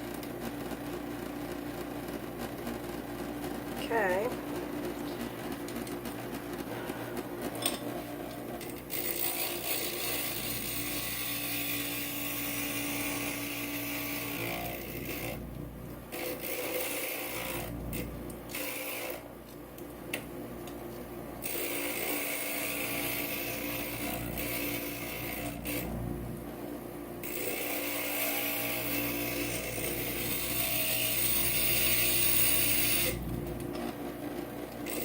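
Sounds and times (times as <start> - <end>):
glass grinder motor hum: 8.6 - 15.4, 16.1 - 19.3, 21.4 - 26.1, 27.2 - 33.6
bit grinding glass: 8.9 - 15.1, 27.3 - 33.2.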